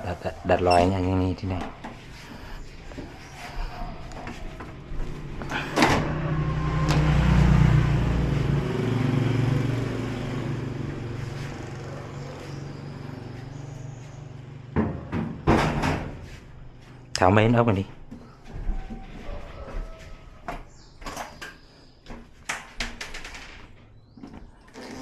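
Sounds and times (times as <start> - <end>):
vehicle engine passing by: 2.1 - 14.8.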